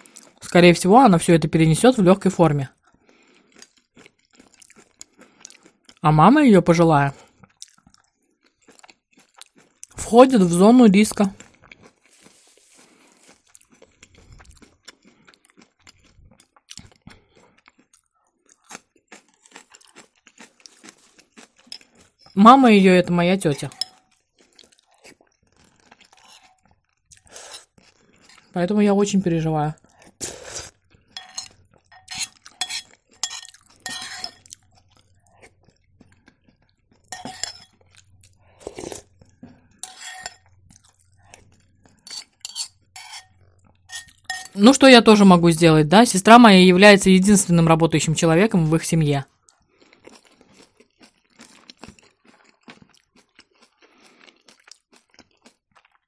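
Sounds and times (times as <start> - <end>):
chewing crunchy food: 0.0 - 0.5, 2.7 - 6.1, 7.1 - 10.0, 10.7 - 28.6, 29.7 - 44.6, 49.2 - 56.0
metal spoon scraping a bowl: 23.4 - 24.0, 30.6 - 34.5, 37.1 - 37.8, 39.8 - 40.5, 42.0 - 44.8.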